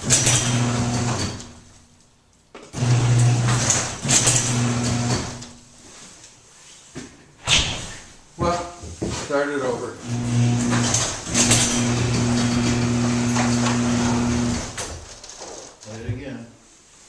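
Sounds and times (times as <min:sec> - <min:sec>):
garage door motor humming: 0:00.0 - 0:01.7, 0:02.7 - 0:05.7, 0:10.0 - 0:15.5.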